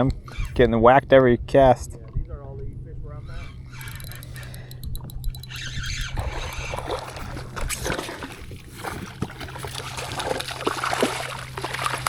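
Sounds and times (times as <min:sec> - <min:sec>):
water splashing against a kayak: 0:06.0 - 0:12.0.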